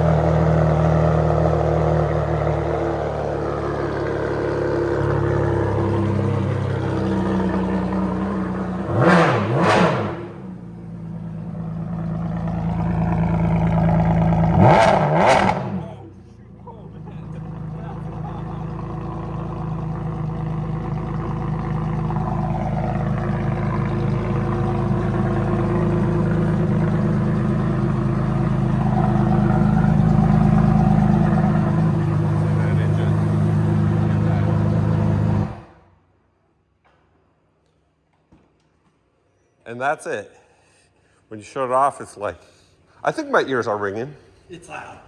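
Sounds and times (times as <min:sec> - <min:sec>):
sports car engine idling and revving: 0:00.0 - 0:36.0.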